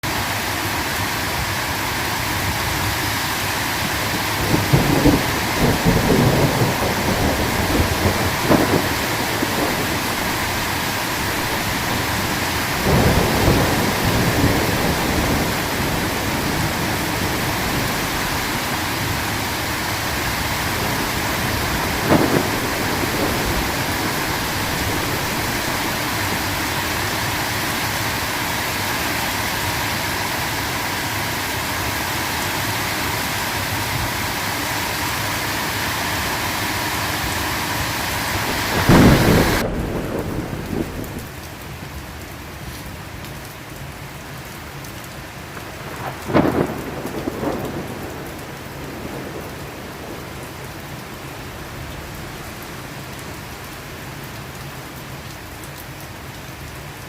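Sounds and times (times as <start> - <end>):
heavy rain: 0.0 - 57.0
thunder rumbling and cracking: 2.2 - 28.6, 37.8 - 41.7, 45.6 - 53.5.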